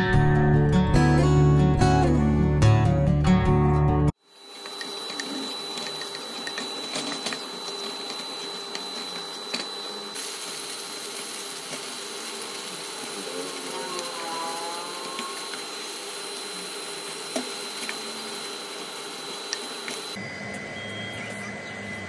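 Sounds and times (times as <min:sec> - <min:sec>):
onions sizzling in oil: 0:04.3 - 0:20.2.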